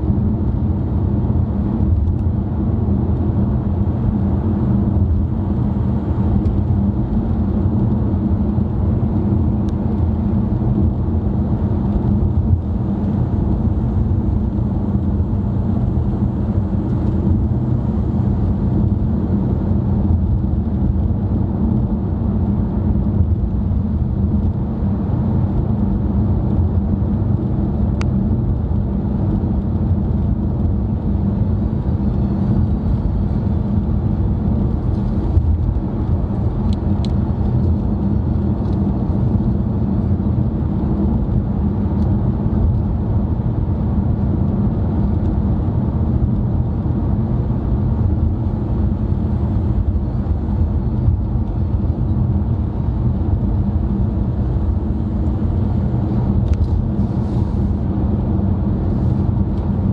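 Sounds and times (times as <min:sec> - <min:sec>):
car interior road rumble: 0:00.0 - 0:59.9.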